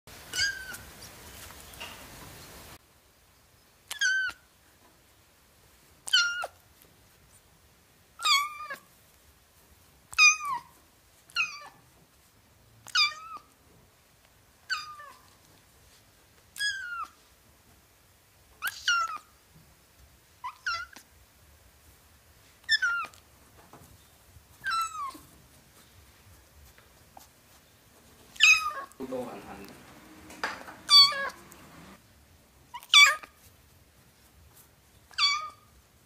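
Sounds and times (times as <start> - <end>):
kitten meowing: 0.3 - 0.9, 3.9 - 4.4, 6.1 - 6.5, 8.2 - 8.8, 11.3 - 11.8, 12.9 - 13.5, 18.6 - 19.2, 24.6 - 25.2, 28.4 - 32.0, 35.1 - 35.6.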